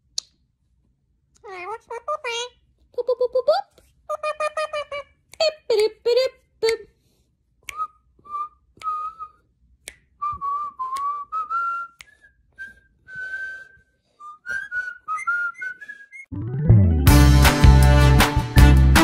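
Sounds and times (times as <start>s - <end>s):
whistled notes: 7.7s - 9.4s, 10.1s - 16.4s.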